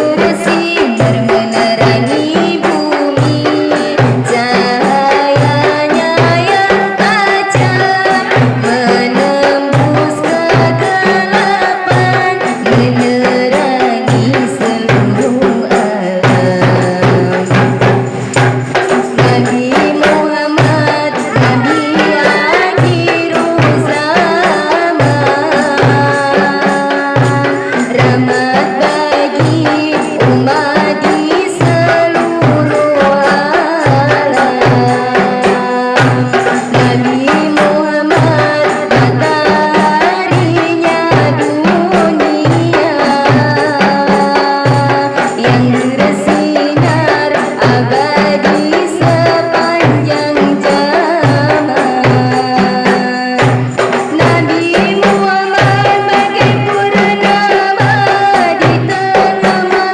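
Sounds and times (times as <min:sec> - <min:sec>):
tambourine jingles: 0:00.0 - 0:59.8
frame drums beating: 0:00.0 - 0:59.9.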